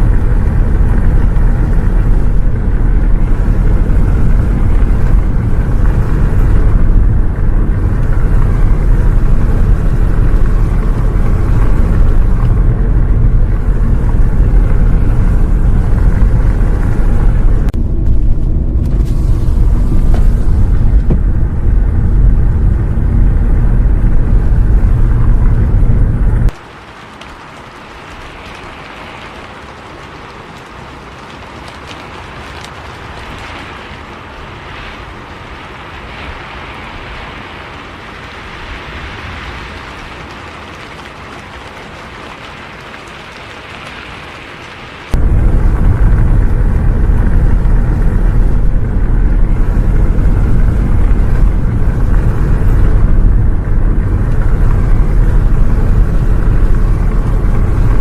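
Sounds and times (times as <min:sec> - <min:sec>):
bus engine rumble on road: 0:00.0 - 0:26.6, 0:44.8 - 0:58.0
rain hiss: 0:00.0 - 0:58.0.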